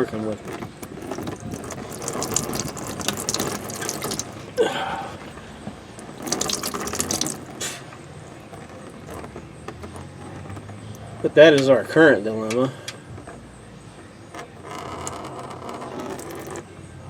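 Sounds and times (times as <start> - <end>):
oil pouring into drain pan: 1.0 - 4.7, 6.0 - 7.8, 15.8 - 16.6.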